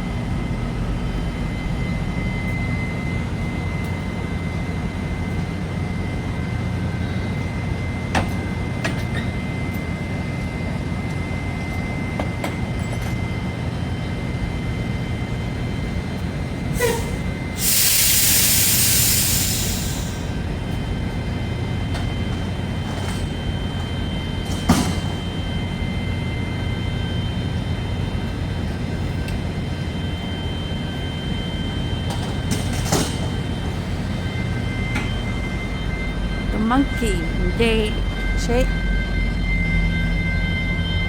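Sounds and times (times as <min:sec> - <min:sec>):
loud air hiss: 0:17.6 - 0:20.4.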